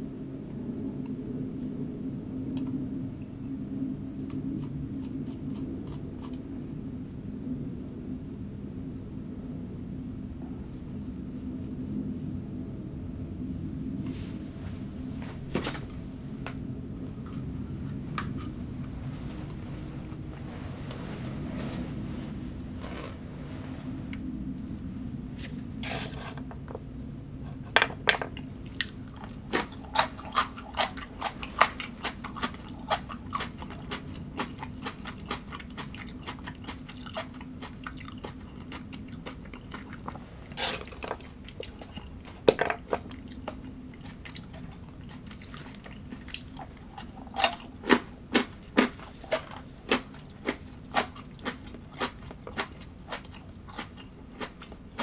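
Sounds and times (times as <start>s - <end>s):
steady low hum: 0.0s - 55.0s
person chewing crunchy food: 4.5s - 6.5s, 28.3s - 55.0s.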